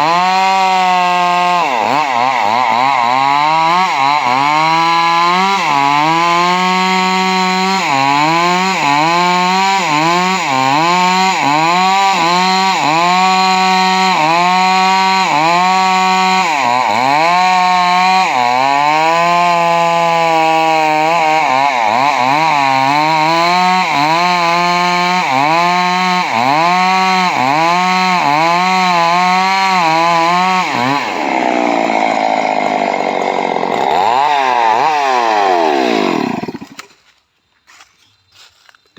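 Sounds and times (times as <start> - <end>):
chainsaw cutting wood: 0.0 - 37.1.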